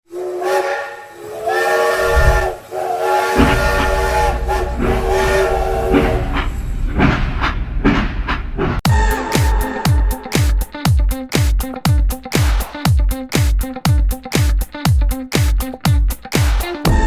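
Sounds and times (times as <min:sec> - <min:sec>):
train horn blasts: 0:00.1 - 0:06.5, 0:08.9 - 0:10.4
train rumbling: 0:01.6 - 0:10.3.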